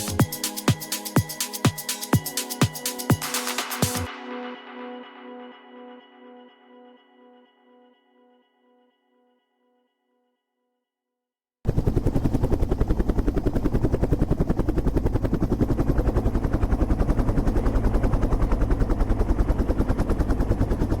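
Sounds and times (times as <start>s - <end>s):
helicopter rotor beating: 0.0s - 4.1s, 11.7s - 21.0s.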